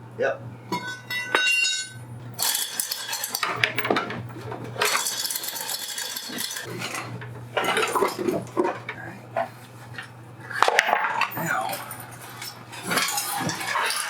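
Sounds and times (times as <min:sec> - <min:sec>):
metal tools clinking together: 0:00.7 - 0:08.4, 0:10.0 - 0:14.0.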